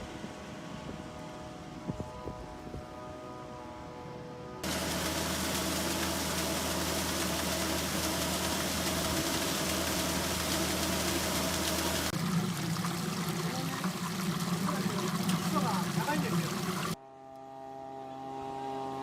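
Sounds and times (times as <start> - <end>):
diesel engine running: 4.6 - 17.0
rushing water noise: 4.6 - 17.0.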